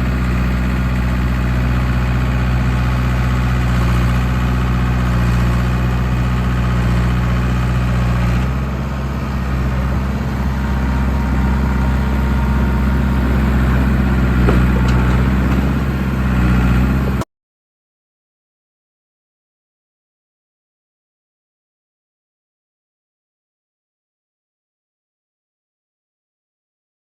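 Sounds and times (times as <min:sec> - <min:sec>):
diesel engine running: 0:00.0 - 0:17.2.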